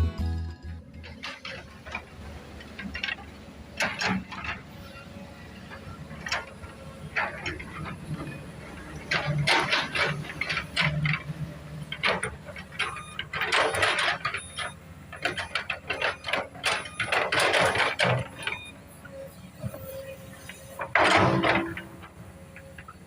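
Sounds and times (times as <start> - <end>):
excavator diesel engine: 0.0 - 23.0
excavator clacks: 0.7 - 23.0
excavator scraping: 0.7 - 23.0.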